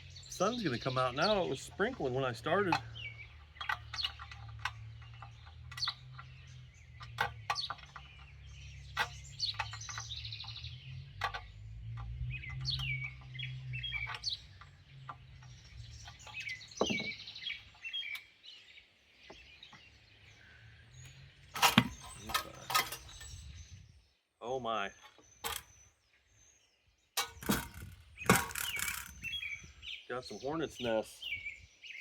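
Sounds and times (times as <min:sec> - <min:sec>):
songbirds chirping: 0:00.0 - 0:32.0
clicks of tools and metal parts: 0:00.5 - 0:10.6, 0:11.2 - 0:17.2, 0:21.0 - 0:23.3, 0:25.0 - 0:25.7, 0:27.2 - 0:29.2.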